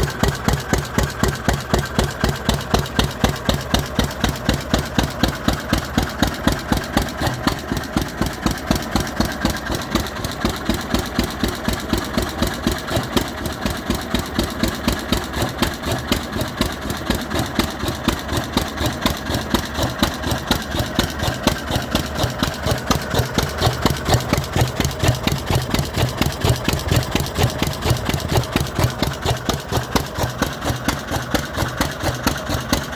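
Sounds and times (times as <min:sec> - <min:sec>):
stationary engine running: 0:00.0 - 0:32.9.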